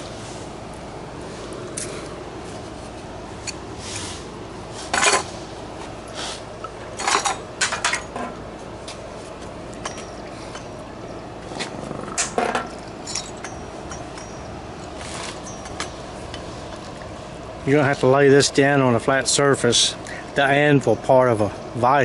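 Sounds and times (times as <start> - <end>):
metal tools clinking: 4.9 - 5.3, 7.0 - 8.4, 9.8 - 16.5.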